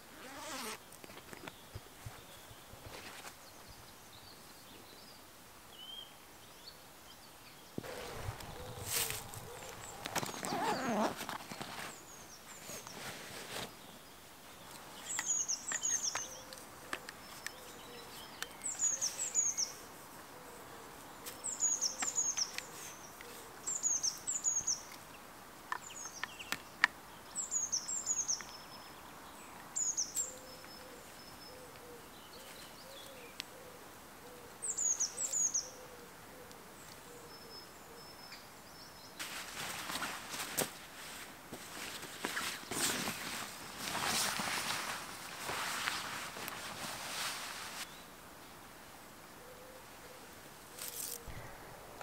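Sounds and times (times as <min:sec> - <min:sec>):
low wavering cooing call: 0:07.9 - 0:11.1, 0:49.4 - 0:50.3.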